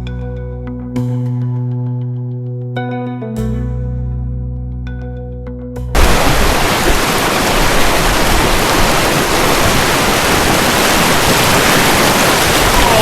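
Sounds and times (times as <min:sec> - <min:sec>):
river rushing over rocks: 0:06.0 - 0:13.0.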